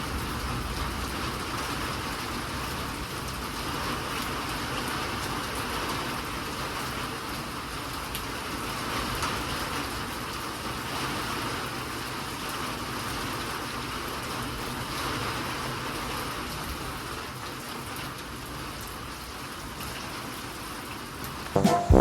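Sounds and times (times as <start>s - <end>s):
steady rain falling: 0.0s - 21.4s.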